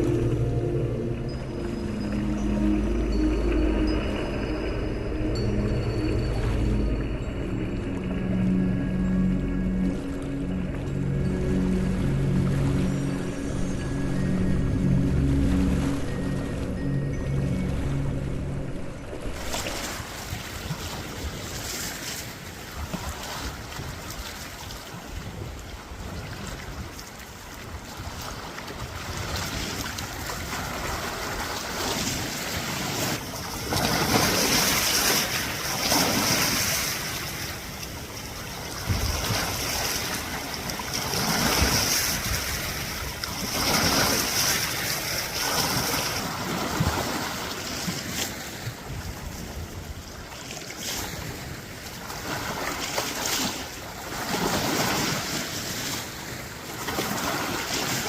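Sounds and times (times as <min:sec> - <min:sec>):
high-pitched steady trill: 0:00.0 - 0:19.3
small waves washing against shore: 0:00.0 - 0:58.0
wind buffeting microphone: 0:04.4 - 0:52.5.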